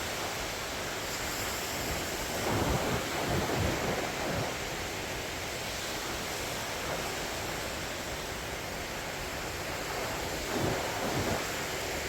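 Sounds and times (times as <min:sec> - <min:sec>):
ocean surf on beach: 0:00.0 - 0:12.0
wind buffeting microphone: 0:01.1 - 0:05.0, 0:09.2 - 0:12.0.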